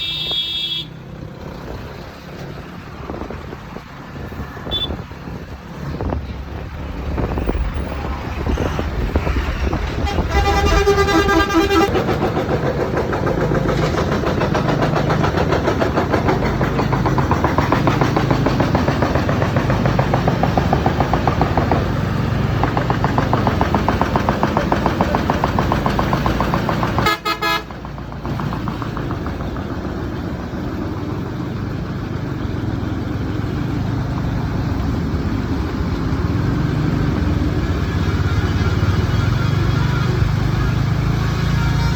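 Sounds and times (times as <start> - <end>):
vehicle horn: 0.0 - 1.0, 4.6 - 5.0, 9.2 - 12.0, 27.0 - 27.7, 39.1 - 41.9
wind and road noise: 0.0 - 41.9
scooter engine running: 10.4 - 41.8.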